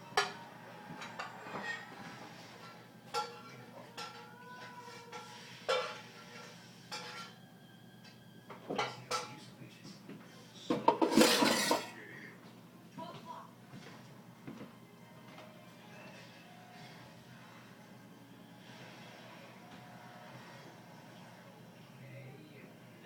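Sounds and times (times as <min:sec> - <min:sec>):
clattering: 0:10.8 - 0:11.9.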